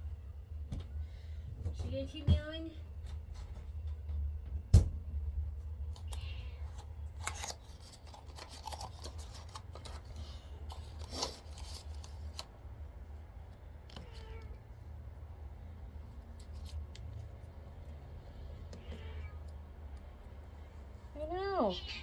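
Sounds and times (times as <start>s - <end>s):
cat meowing: 6.1s - 6.7s, 14.0s - 14.6s, 18.8s - 19.5s.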